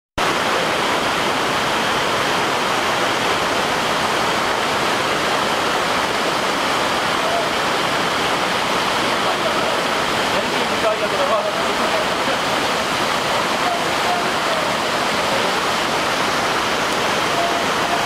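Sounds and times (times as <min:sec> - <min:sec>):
waterfall pouring: 0:00.2 - 0:18.0.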